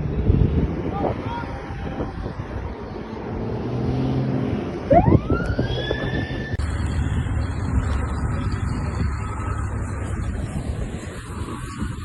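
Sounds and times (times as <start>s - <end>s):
vehicle low rumble: 0.0s - 12.0s
emergency vehicle siren: 1.0s - 3.3s, 4.7s - 12.0s.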